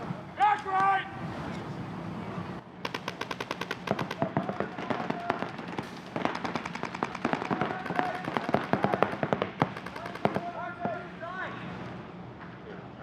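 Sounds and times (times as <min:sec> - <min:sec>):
paintball markers firing: 0:02.8 - 0:10.5.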